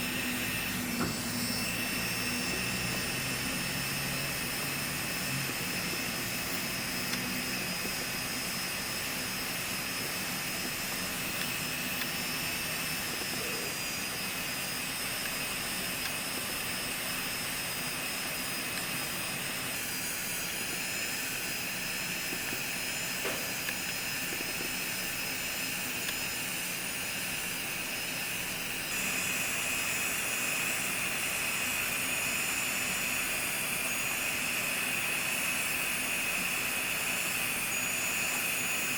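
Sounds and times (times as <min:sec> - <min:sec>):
electric nail drill whining: 0:00.0 - 0:38.9.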